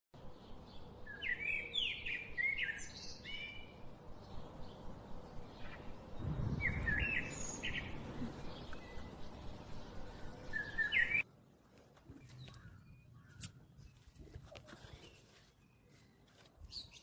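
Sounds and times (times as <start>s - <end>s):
birds chirping: 0.2s - 11.3s, 12.0s - 17.0s
low rumble: 3.6s - 11.2s.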